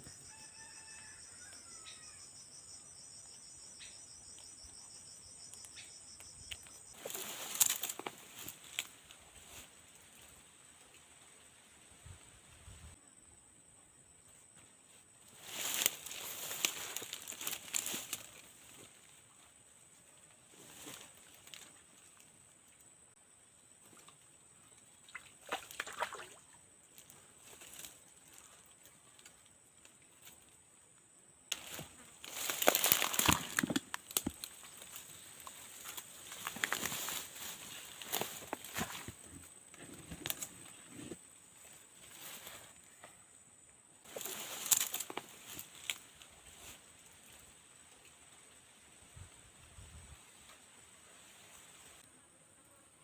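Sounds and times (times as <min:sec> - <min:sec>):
water sloshing and splashing: 0:25.0 - 0:26.5.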